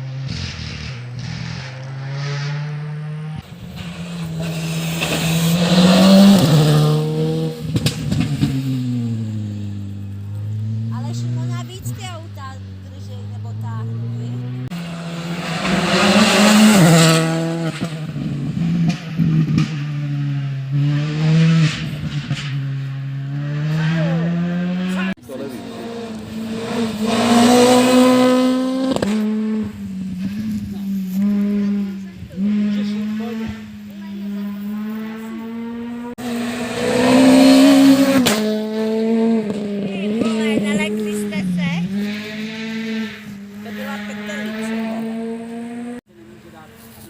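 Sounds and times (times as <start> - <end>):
exhaust cracks: 0.0 - 14.8
rally car engine revving: 0.0 - 47.0.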